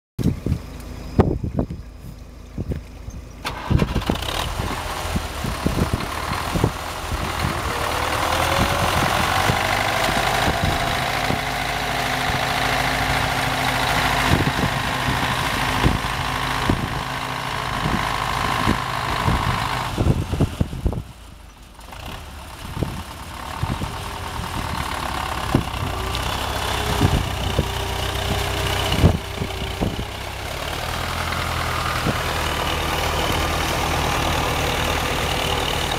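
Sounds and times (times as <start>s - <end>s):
tractor diesel engine running: 0.2s - 35.9s.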